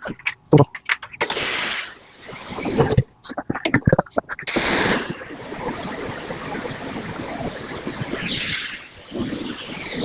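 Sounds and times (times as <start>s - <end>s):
water spray hissing: 1.3s - 3.4s, 4.5s - 10.0s.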